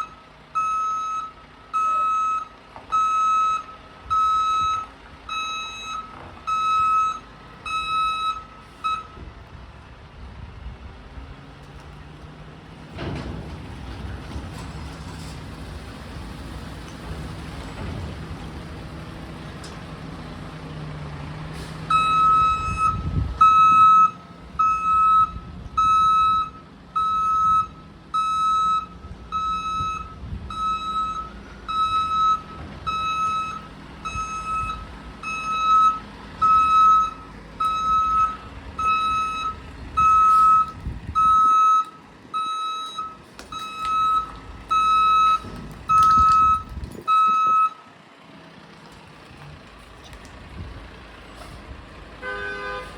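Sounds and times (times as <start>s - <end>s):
truck backup alarm beeping: 0.0s - 9.4s, 21.6s - 47.9s
diesel truck engine running: 0.0s - 52.9s.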